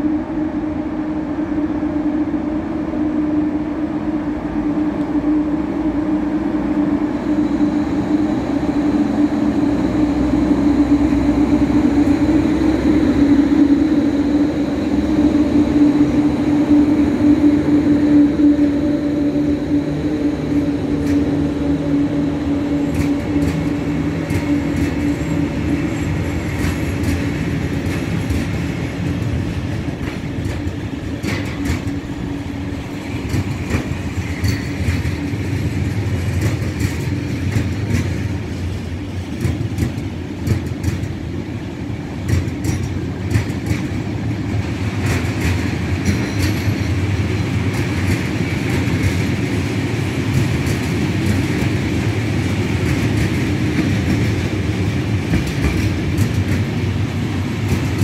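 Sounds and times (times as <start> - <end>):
wagon wheels rumbling on rails: 20.4 - 41.3, 42.1 - 58.0.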